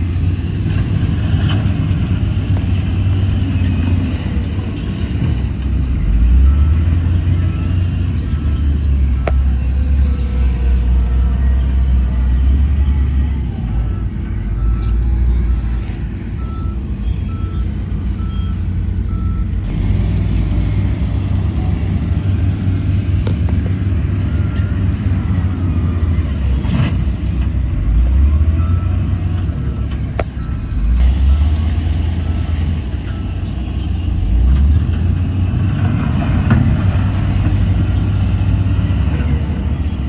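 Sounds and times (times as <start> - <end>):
diesel machinery rumbling: 0.0 - 40.0
reversing alarm beeping: 3.6 - 19.7, 27.9 - 34.7.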